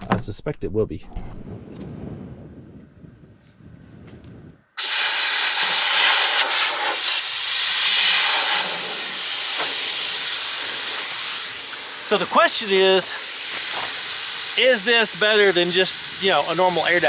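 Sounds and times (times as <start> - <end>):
air hissing out of tires: 4.8 - 17.0.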